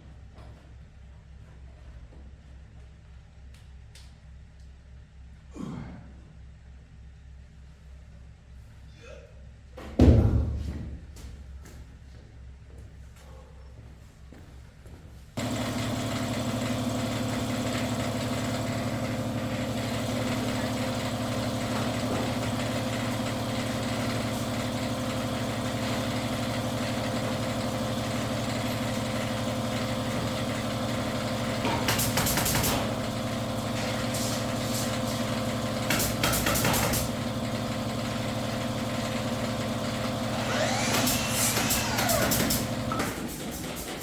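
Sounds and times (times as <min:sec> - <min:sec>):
machine humming: 0:15.4 - 0:43.9.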